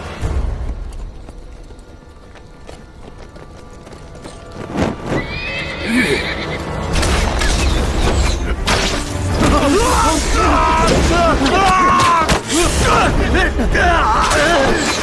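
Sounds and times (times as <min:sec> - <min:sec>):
dramatic score music: 0:00.0 - 0:15.0
horses galloping hoofbeats: 0:00.3 - 0:06.7
horse neighing: 0:05.1 - 0:06.6.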